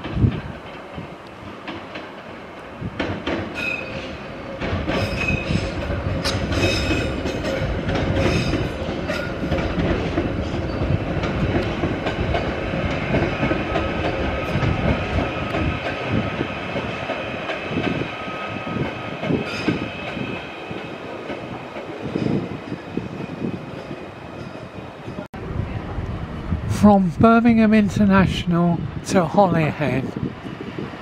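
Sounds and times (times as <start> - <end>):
train wheels clicking over track: 0.0 - 25.2
train rumble: 0.0 - 31.0.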